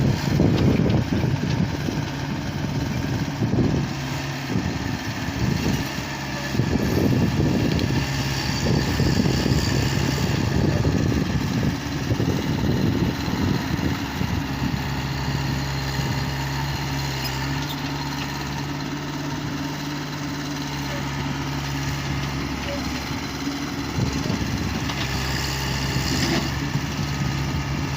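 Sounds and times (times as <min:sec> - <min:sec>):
heavy diesel engine running: 0:00.0 - 0:27.9.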